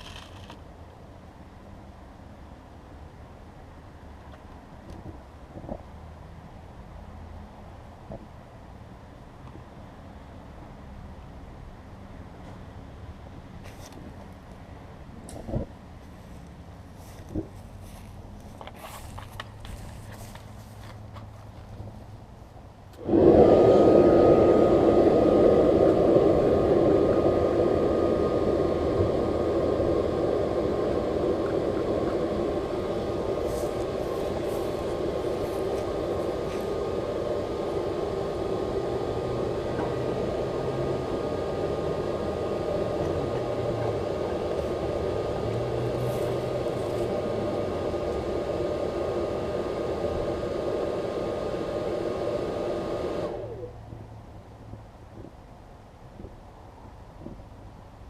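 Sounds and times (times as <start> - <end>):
hairdryer blowing air with whine: 23.0 - 53.8.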